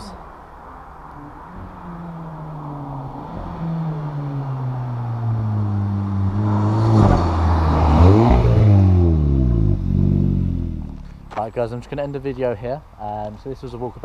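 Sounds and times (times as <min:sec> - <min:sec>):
car engine driving past: 0:00.7 - 0:11.5.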